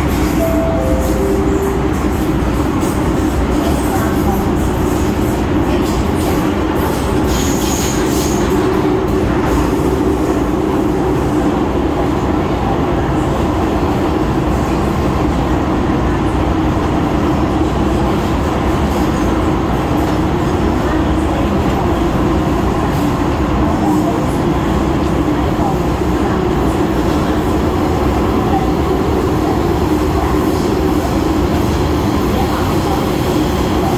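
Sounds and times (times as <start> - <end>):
wheels rumbling on rail: 0.0 - 33.9.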